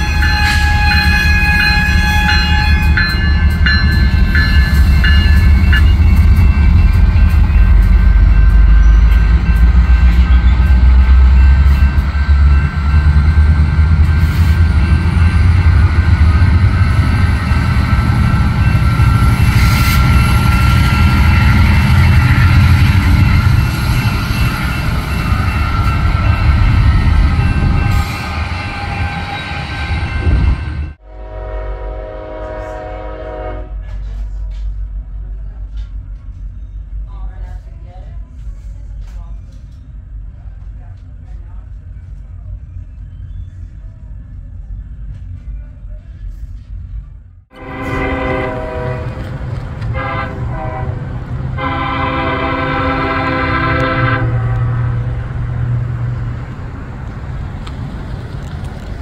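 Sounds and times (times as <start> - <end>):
train air horn: 0.0 - 3.1, 31.0 - 34.1, 47.5 - 55.1
crossing bell dinging: 0.0 - 31.0
deep locomotive engine rumble: 0.0 - 59.0.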